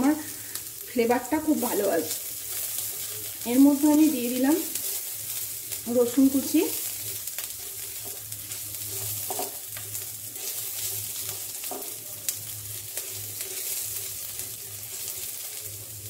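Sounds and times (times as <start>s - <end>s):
garlic sizzling in hot oil: 0.0s - 16.0s
spatula scraping a pan: 1.5s - 4.0s, 6.7s - 12.0s, 12.8s - 15.7s.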